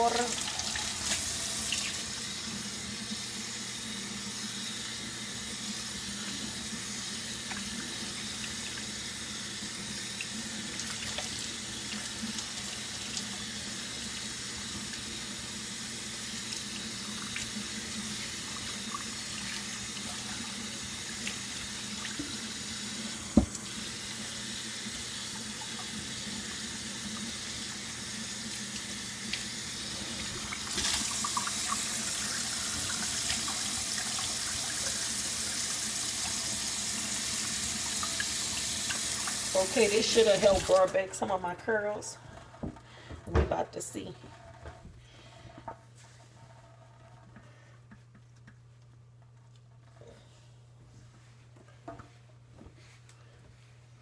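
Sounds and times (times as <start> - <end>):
tap water running into sink: 0.0 - 41.0.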